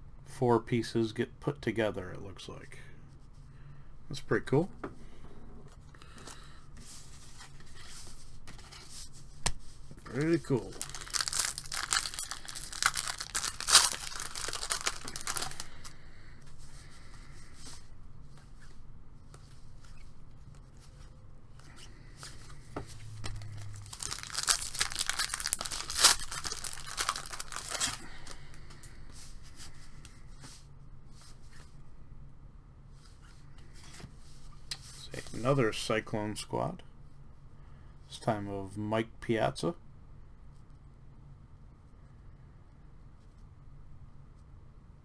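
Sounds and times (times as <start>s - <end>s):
wrapper tearing and crinkling: 10.1s - 15.9s, 23.2s - 28.4s
cards and wrapper rustling: 10.1s - 16.0s, 23.2s - 28.7s.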